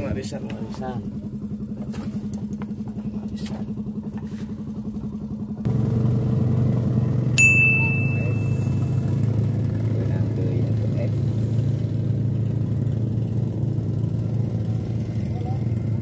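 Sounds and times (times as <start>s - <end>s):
engine running with fast pulse: 0.0s - 16.0s
bright ding: 7.4s - 9.0s.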